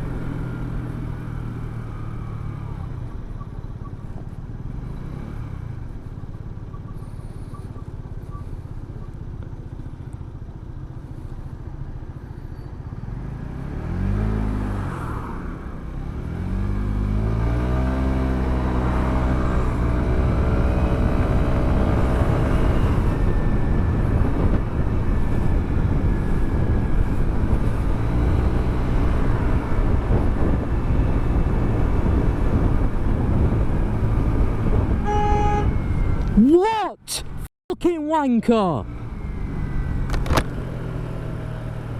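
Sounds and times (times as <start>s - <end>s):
motorcycle engine accelerating: 0.0s - 36.4s
wind noise: 19.4s - 36.4s.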